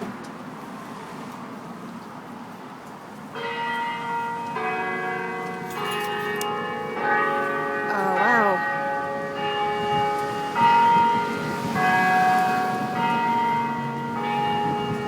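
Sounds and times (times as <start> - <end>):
clock tower chime bells: 3.3 - 15.0.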